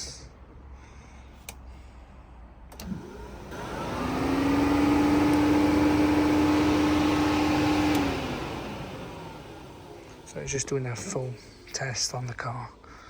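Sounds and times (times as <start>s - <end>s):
click: 1.4s - 1.6s, 2.7s - 3.0s, 5.3s - 5.5s, 7.9s - 8.1s
car motor whirring: 2.7s - 12.0s.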